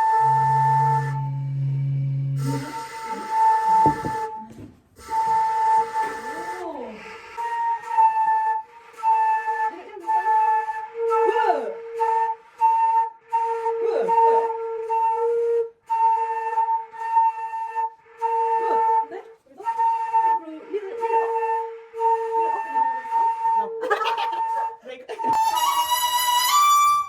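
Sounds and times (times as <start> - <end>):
bamboo flute slow melody: 0.0 - 27.0.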